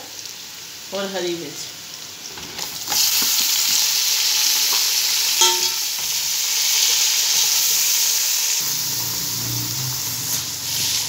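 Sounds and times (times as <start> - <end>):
vegetables sizzling in hot oil: 0.0 - 11.0
metal ladle clinking against pot: 5.4 - 6.0.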